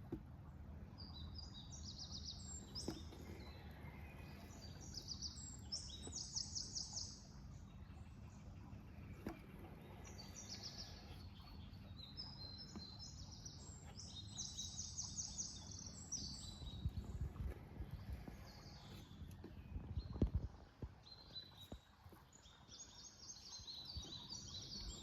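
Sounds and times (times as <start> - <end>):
low outdoor rumble: 0.0 - 25.0
birds chirping and singing: 1.0 - 20.3.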